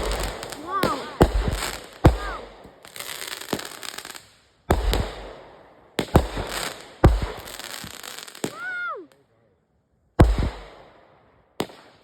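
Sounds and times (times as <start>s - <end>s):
fireworks bangs: 0.0s - 8.9s, 10.2s - 11.0s
fireworks crackling: 0.0s - 9.2s.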